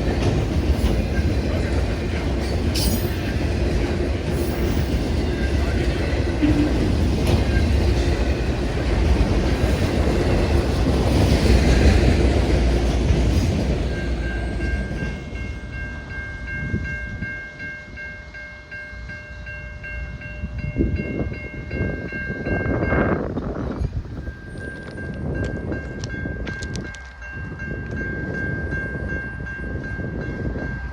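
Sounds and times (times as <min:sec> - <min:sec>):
freight train wheels clattering on rails: 0:00.0 - 0:17.3.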